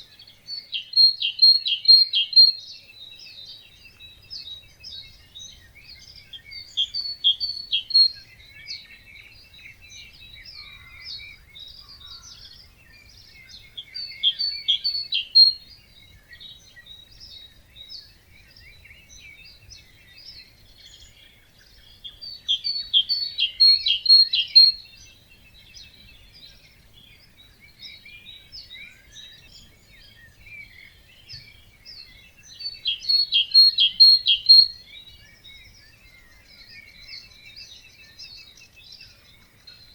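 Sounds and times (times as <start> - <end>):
bird song of rapid notes: 0.0 - 39.9
birds chirping: 0.0 - 39.9.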